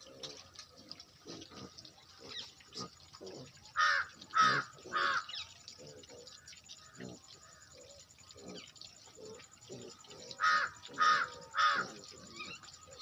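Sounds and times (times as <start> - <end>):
crow cawing: 3.8 - 5.3, 10.4 - 11.9.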